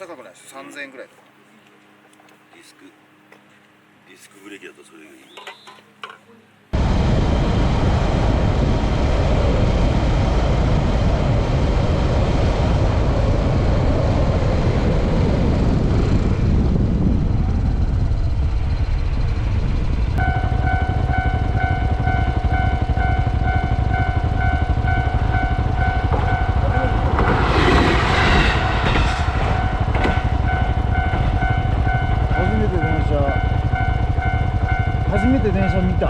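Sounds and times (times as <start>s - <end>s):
wind noise on microphone: 6.8s - 36.0s
motorcycle running: 7.3s - 36.0s
level crossing alarm ringing: 20.2s - 27.4s, 29.3s - 36.0s.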